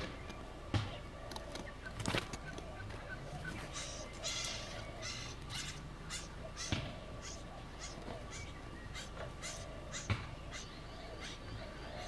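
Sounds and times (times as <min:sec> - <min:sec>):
chicks giving raspy calls: 0:00.0 - 0:12.0.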